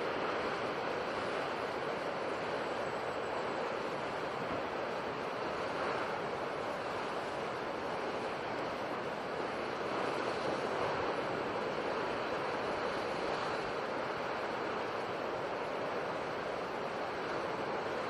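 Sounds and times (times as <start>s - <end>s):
sea surf washing: 0.0s - 18.0s.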